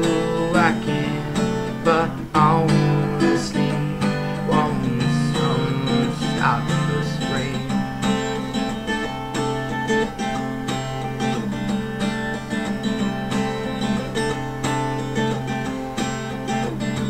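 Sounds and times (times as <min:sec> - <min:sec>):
acoustic guitar plucking: 0:00.0 - 0:17.0.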